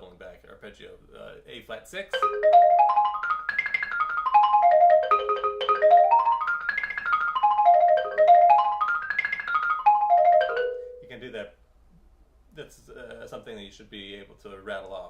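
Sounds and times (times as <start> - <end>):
xylophone arpeggio: 2.1 - 11.1.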